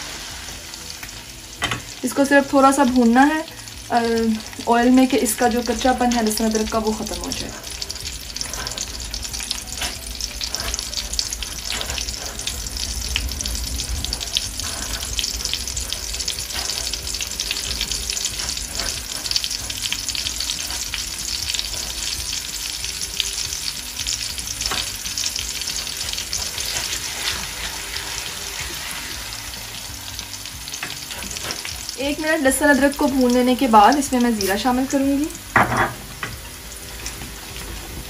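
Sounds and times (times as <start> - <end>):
garlic sizzling in hot oil: 0.0 - 38.0
wooden spoon stirring: 6.2 - 22.3.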